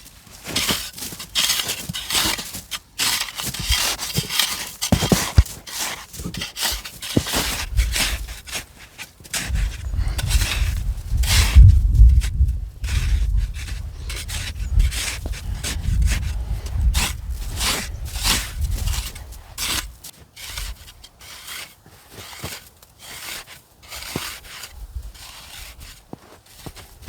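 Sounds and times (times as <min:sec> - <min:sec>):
rough scraping strokes: 0:00.3 - 0:27.0
low rumble: 0:09.5 - 0:19.1.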